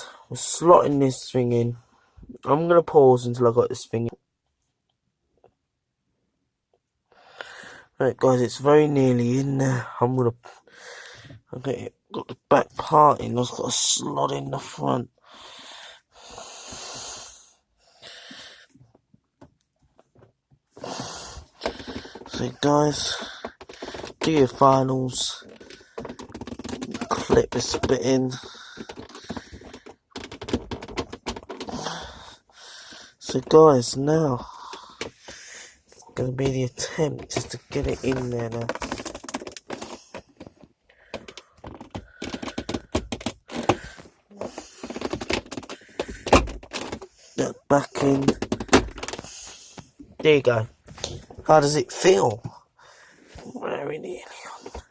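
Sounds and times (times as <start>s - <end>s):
plastic trim clicking and creaking: 21.5s - 35.4s, 36.2s - 49.3s
man breathing out hard: 31.6s - 33.2s.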